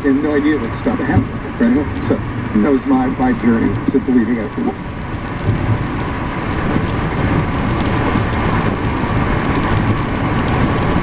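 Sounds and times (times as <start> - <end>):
road and rain noise: 0.0 - 11.0.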